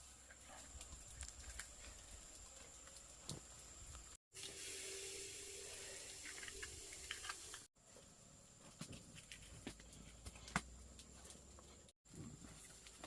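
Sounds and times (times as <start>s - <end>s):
running water hiss: 0.0s - 7.7s.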